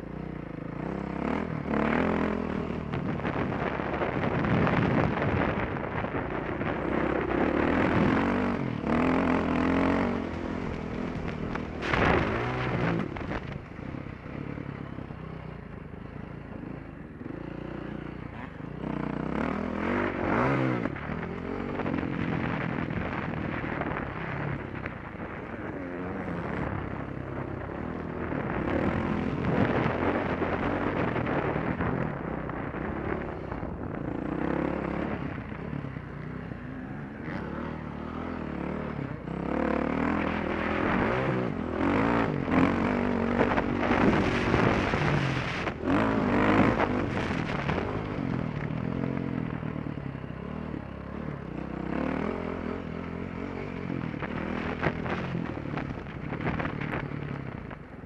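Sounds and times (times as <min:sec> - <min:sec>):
motorbike engine revving: 0:00.6 - 0:05.6, 0:06.4 - 0:14.7, 0:25.1 - 0:57.1.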